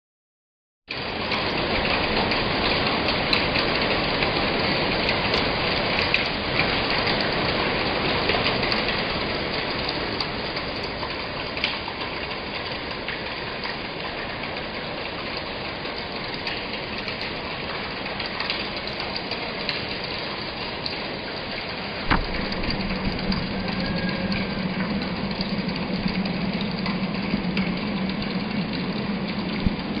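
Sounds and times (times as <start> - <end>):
steady rain falling: 0.9 - 30.0
steady low hum: 19.3 - 30.0.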